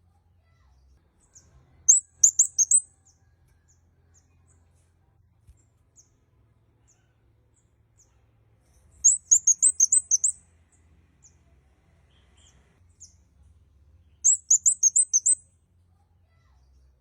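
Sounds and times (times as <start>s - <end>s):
bird singing high chirps: 1.3s - 2.9s, 9.0s - 10.4s, 14.0s - 15.4s.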